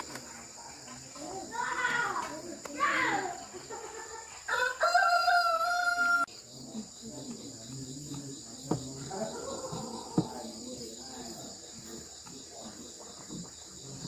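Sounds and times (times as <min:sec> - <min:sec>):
high insect drone: 0:00.0 - 0:14.0
rooster crowing: 0:04.4 - 0:06.3.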